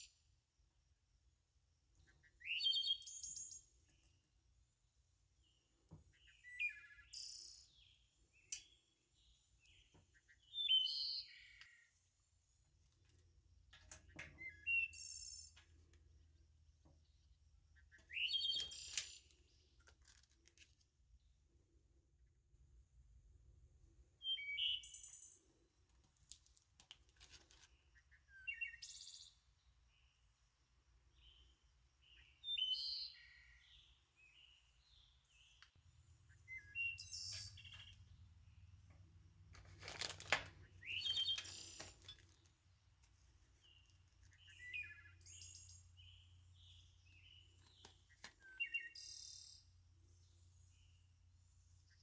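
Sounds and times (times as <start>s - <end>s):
songbird chirping: 0.0s - 52.0s
plastic packets crinkling: 39.6s - 40.6s.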